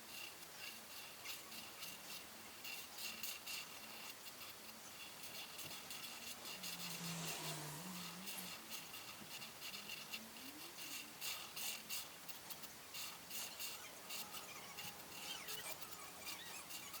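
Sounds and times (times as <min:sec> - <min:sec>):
coloring strokes scratching paper: 0:00.0 - 0:17.0.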